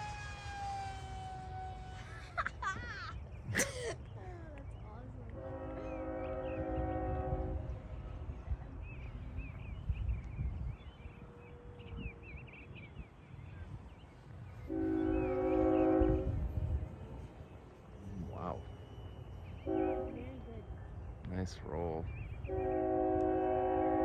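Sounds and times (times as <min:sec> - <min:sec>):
wind rumbling on microphone: 0:04.8 - 0:18.3
horn blasting a chord: 0:05.4 - 0:07.7, 0:14.7 - 0:16.5, 0:19.6 - 0:20.4, 0:22.5 - 0:24.0.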